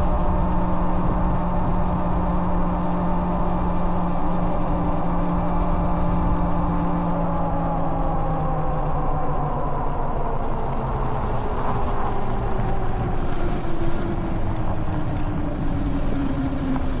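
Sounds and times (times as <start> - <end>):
tyres and wind rumbling: 0.0 - 17.0.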